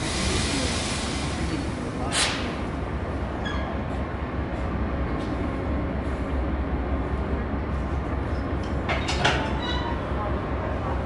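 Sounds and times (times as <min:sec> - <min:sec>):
diesel train idling: 0:00.0 - 0:08.9.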